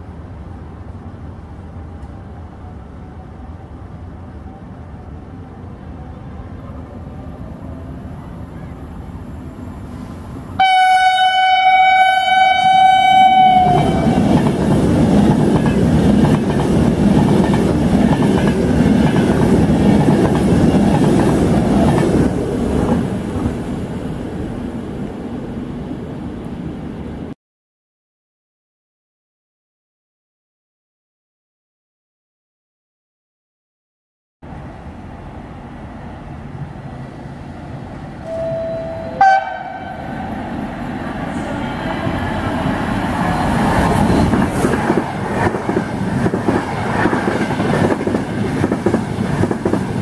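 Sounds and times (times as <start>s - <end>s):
train horn blast: 10.6s - 14.3s, 38.2s - 40.2s
passing train carriages clattering: 38.2s - 50.0s.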